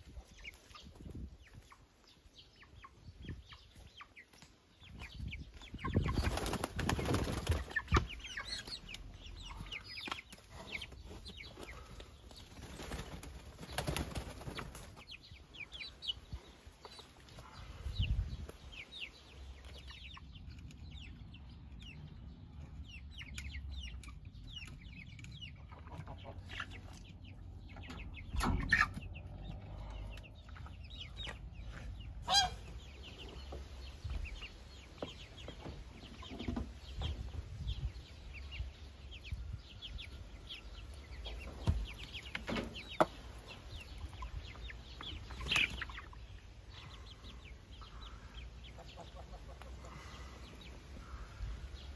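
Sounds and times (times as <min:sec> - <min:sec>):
chickens clucking and cheeping: 0:00.0 - 0:51.9
wings flapping: 0:06.1 - 0:08.1, 0:12.4 - 0:15.0.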